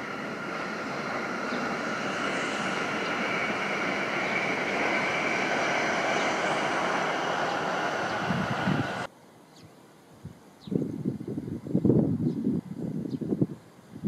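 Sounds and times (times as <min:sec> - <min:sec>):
high-speed train rushing hum: 0:00.0 - 0:09.1.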